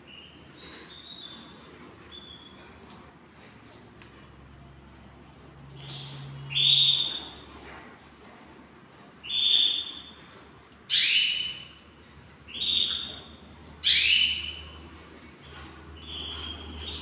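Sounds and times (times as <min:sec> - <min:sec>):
canary twittering: 0:05.8 - 0:07.4, 0:09.2 - 0:10.2, 0:10.9 - 0:11.8, 0:12.5 - 0:14.8, 0:16.0 - 0:17.0
canary whistled call notes: 0:10.9 - 0:11.7, 0:13.8 - 0:14.7.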